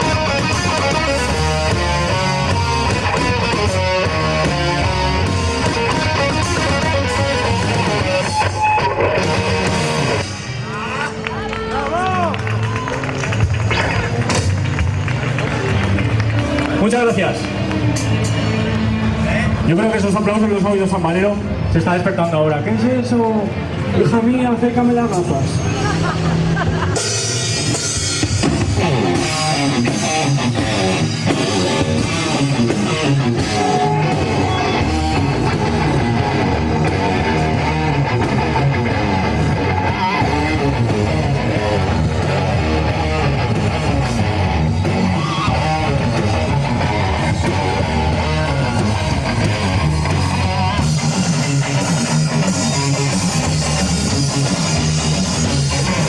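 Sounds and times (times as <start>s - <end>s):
drum kit: 0.0s - 10.6s, 13.4s - 16.1s, 26.4s - 56.0s
electric guitars: 0.0s - 56.0s.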